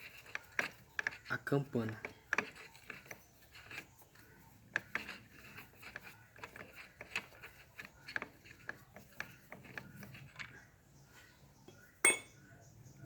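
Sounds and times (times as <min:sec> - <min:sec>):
sharp metal clinks: 0:12.0 - 0:12.4.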